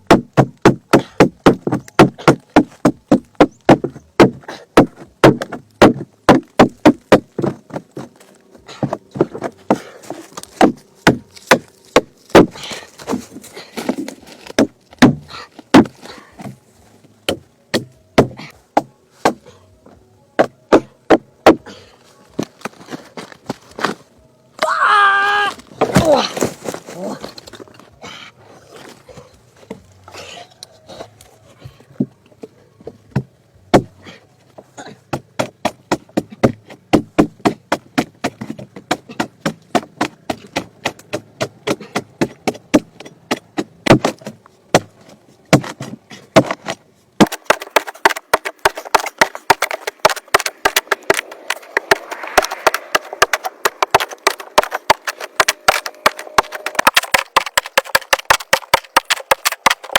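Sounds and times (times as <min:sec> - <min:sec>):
hand tool chopping wood: 0:00.0 - 0:16.6, 0:17.3 - 0:19.5, 0:20.4 - 0:21.8, 0:24.6 - 0:27.8, 0:33.1 - 0:34.2, 0:34.8 - 0:59.9
steady rushing noise: 0:49.2 - 0:58.0.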